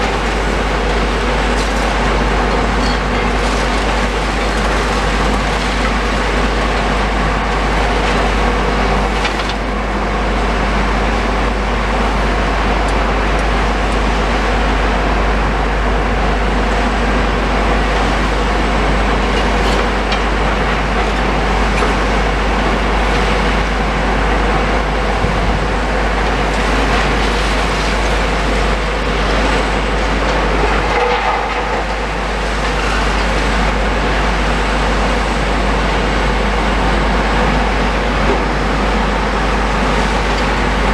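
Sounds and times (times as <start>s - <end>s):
demolition machinery engine drone: 0.0s - 40.9s.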